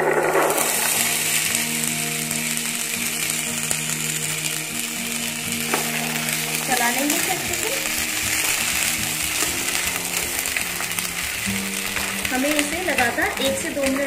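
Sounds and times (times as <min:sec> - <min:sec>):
chickpeas sizzling in hot oil: 0:00.0 - 0:14.0.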